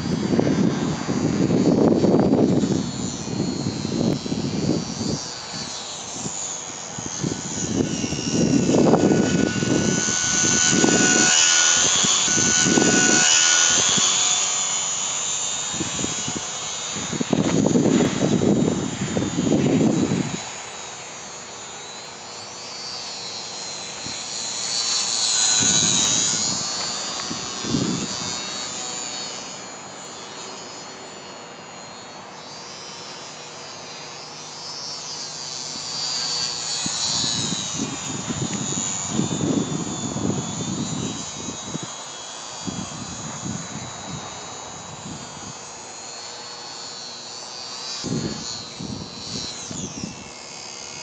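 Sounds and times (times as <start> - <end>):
wind buffeting microphone: 0.0 - 20.8, 23.9 - 29.6, 36.4 - 45.7, 48.0 - 50.3
model plane motor whining: 0.0 - 51.0.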